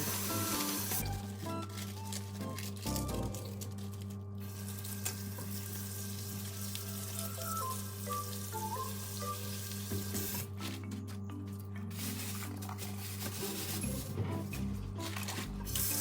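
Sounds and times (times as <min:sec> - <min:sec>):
soft background music: 0:00.0 - 0:04.2, 0:06.4 - 0:16.0.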